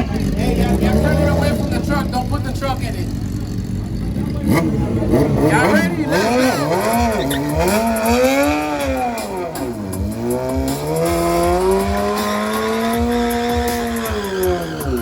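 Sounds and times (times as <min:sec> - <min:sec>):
car engine revving: 0:00.0 - 0:15.0
tyre squeal: 0:05.6 - 0:07.7.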